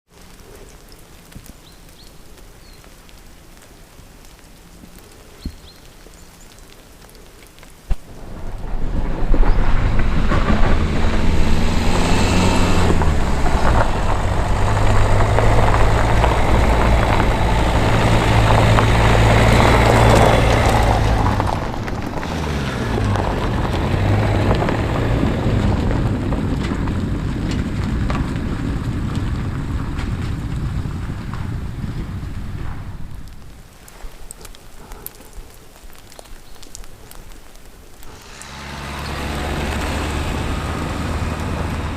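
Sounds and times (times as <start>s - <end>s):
rushing noise: 7.9s - 27.0s
engine running: 8.1s - 30.6s, 38.1s - 41.9s.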